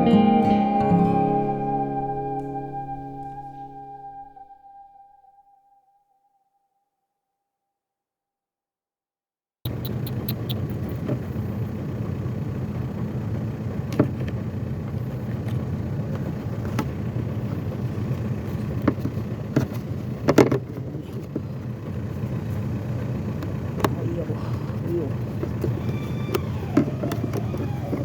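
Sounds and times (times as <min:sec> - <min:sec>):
car engine running: 0:09.7 - 0:28.0.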